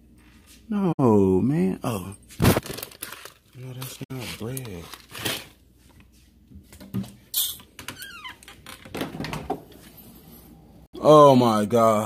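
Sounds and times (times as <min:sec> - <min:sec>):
kitchen knocks and rustles: 0:05.4 - 0:10.0.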